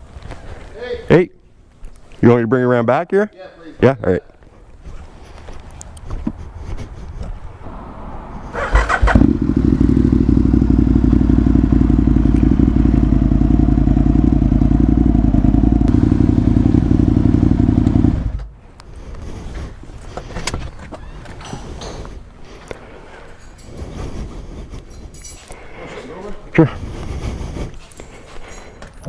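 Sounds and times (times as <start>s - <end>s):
motorcycle engine running: 8.6s - 18.5s.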